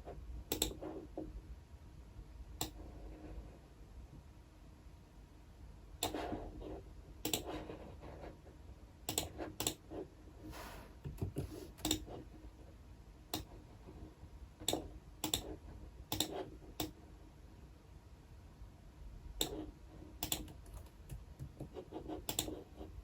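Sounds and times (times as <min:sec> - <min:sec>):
computer keyboard typing: 0:00.5 - 0:00.8, 0:11.1 - 0:12.1, 0:14.6 - 0:17.0, 0:20.2 - 0:22.6.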